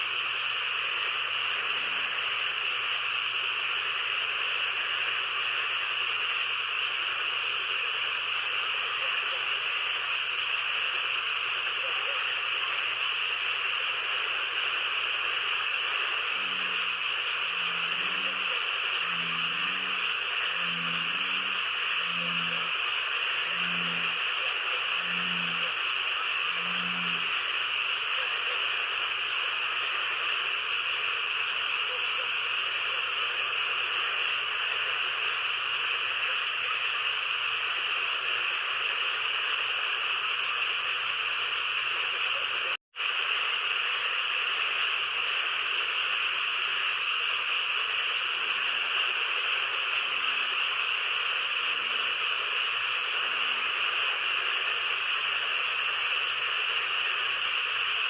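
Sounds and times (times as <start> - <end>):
chorus of calling frogs: 14.4 - 28.8
soft low frog croaks: 15.4 - 27.4.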